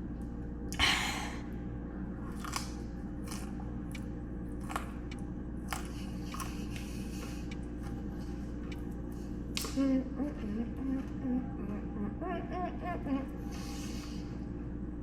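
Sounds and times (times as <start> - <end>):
person chewing crunchy food: 2.2 - 9.7.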